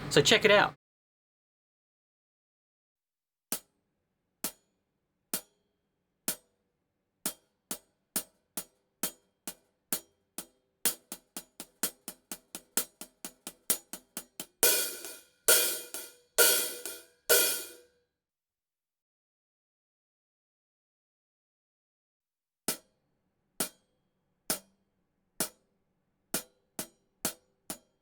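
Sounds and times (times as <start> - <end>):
hi-hat struck with drumstick: 7.3 - 17.8, 23.6 - 23.8, 26.4 - 28.0.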